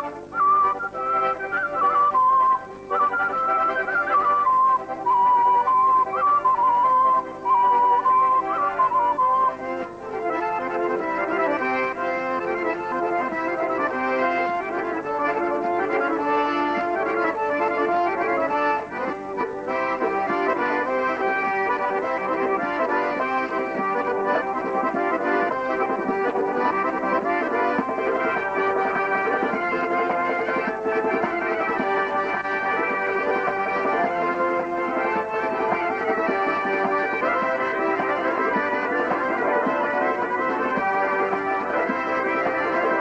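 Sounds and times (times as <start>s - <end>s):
accordion dance music: 0.0s - 43.0s.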